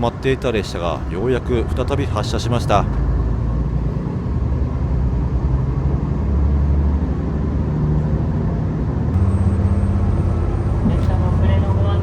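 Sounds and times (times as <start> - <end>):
diesel railcar engine drone: 0.0 - 12.0.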